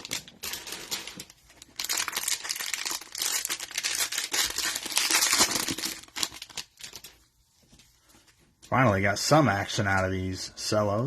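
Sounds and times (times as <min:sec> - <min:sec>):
cellophane wrapper crinkling and tearing: 0:00.0 - 0:07.4.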